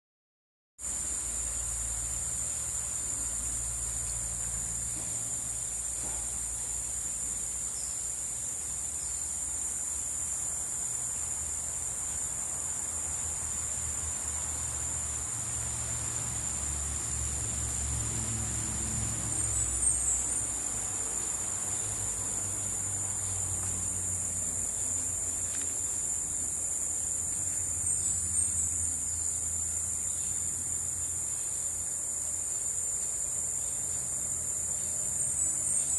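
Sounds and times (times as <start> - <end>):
insects droning: 0.8 - 35.9.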